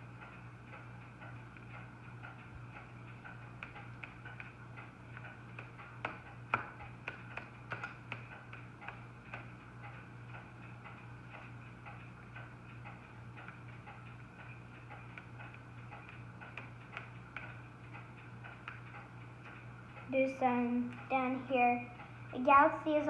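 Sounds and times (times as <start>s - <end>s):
steady low hum: 0.0s - 23.0s
paintbrush tapping on paper: 3.6s - 9.5s, 15.1s - 17.6s.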